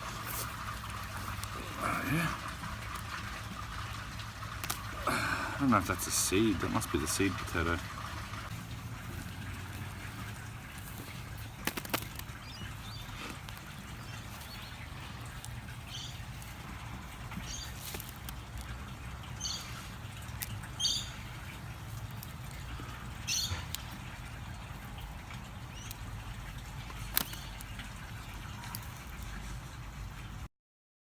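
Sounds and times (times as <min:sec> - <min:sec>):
hands scraping through soil: 0:00.0 - 0:02.6, 0:08.5 - 0:18.9
high bird chirps: 0:20.7 - 0:21.4.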